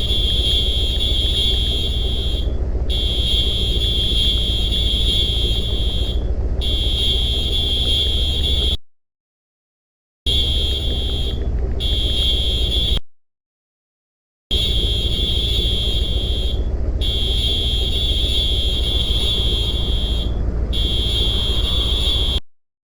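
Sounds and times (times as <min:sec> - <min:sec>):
heavy low rumble: 0:00.0 - 0:07.8, 0:10.8 - 0:12.2, 0:14.8 - 0:22.4
high-pitched electronic tone: 0:16.0 - 0:22.4.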